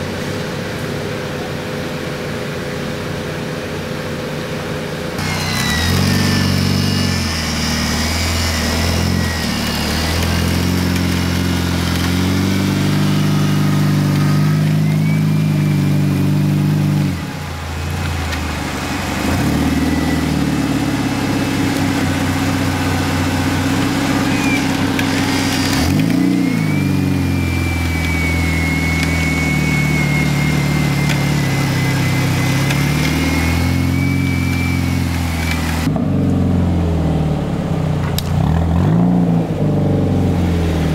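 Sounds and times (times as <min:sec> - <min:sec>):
thin high whine: 0:05.2 - 0:35.9
engine revving hard: 0:05.2 - 0:36.6, 0:38.2 - 0:40.9.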